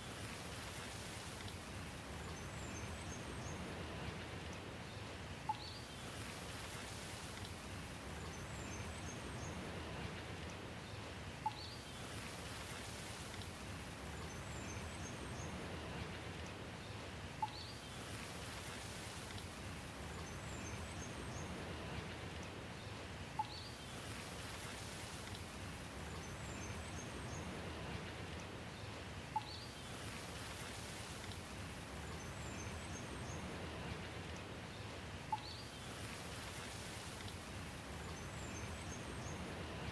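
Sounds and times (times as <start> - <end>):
rain hiss: 0.0 - 4.5, 5.2 - 39.9
faint high bird chirps: 11.4 - 11.8, 23.4 - 23.8, 35.3 - 35.8.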